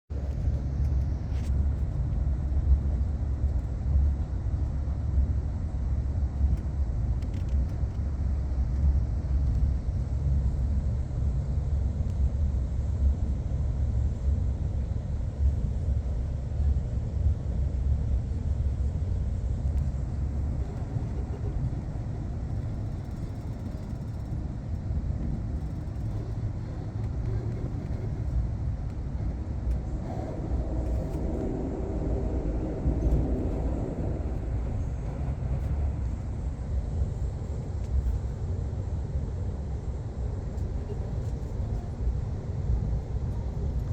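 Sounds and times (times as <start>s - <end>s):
vehicle rumbling: 19.3s - 43.9s.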